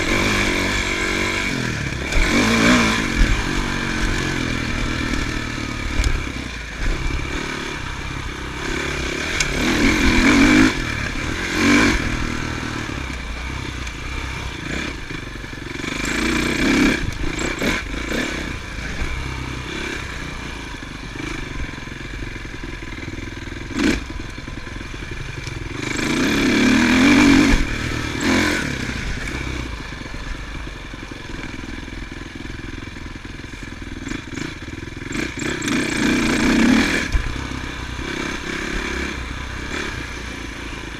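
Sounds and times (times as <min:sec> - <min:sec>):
motorcycles passing: 0:00.0 - 0:40.9.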